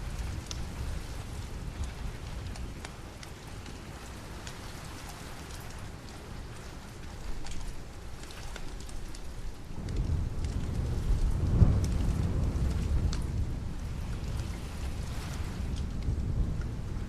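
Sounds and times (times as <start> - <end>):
steady rain: 0.0 - 17.0
low roll of thunder: 9.7 - 17.0.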